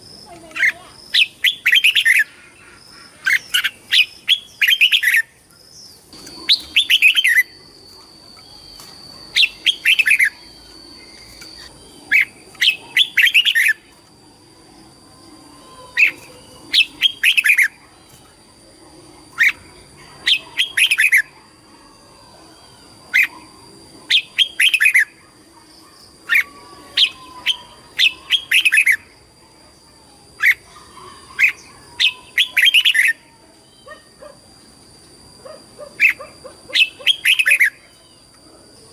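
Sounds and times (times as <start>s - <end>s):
bird singing whistled notes: 6.2s - 13.9s, 16.0s - 17.7s, 24.1s - 25.2s.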